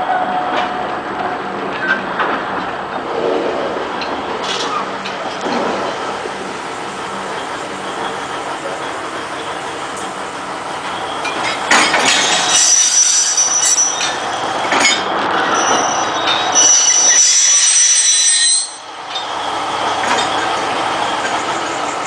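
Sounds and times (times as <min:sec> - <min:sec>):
low rumble: 0:02.6 - 0:05.9
steel wheels squealing: 0:07.3 - 0:22.0.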